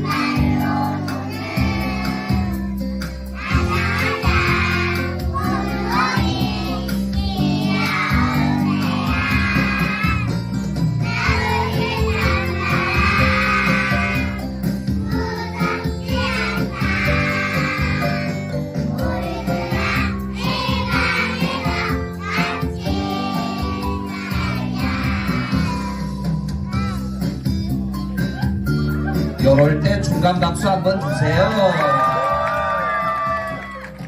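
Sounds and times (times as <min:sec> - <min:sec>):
young children singing together: 0:00.0 - 0:27.0
instrumental accompaniment: 0:00.0 - 0:31.2.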